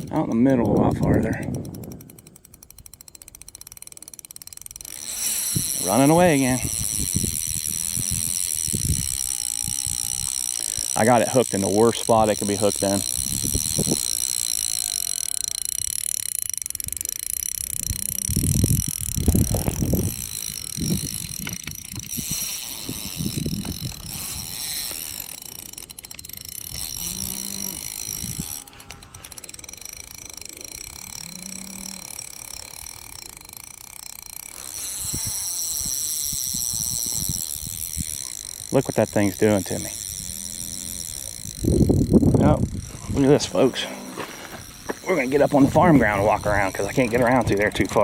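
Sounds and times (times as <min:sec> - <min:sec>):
low wind rumble on microphone: 0:00.0 - 0:02.9, 0:04.9 - 0:14.5, 0:15.6 - 0:25.2, 0:26.7 - 0:29.2, 0:34.8 - 0:38.7, 0:39.9 - 0:43.8
short low calls: 0:07.7 - 0:15.9, 0:26.7 - 0:29.3
high-pitched insect chorus: 0:07.9 - 0:15.7.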